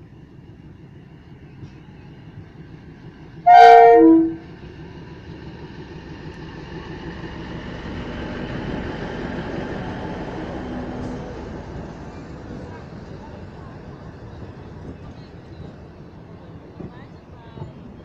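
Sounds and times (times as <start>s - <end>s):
train coaches rumbling on rails: 0.0s - 18.0s
train horn blast: 3.4s - 4.5s.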